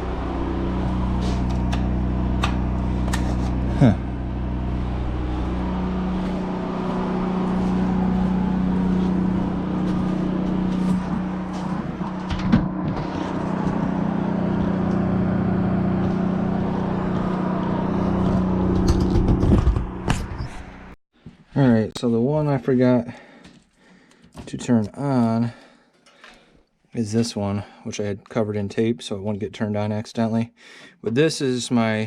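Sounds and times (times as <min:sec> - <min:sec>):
generator engine humming: 0:00.0 - 0:21.0.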